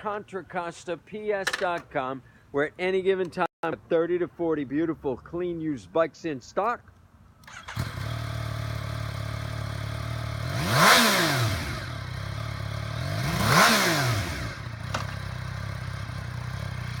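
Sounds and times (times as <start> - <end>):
motorcycle engine idling: 7.5 - 10.6, 11.8 - 13.2, 14.4 - 17.0.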